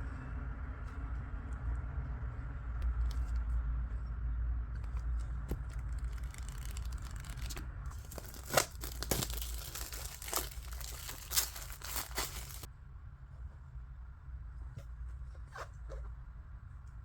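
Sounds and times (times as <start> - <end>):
packaging torn and crumpled: 5.5 - 12.7.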